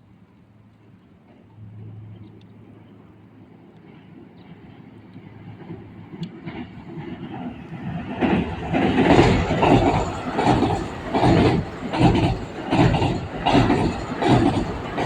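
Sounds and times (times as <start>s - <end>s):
train approaching: 0.5s - 15.0s
train wheels knocking over rail joints: 8.1s - 15.0s.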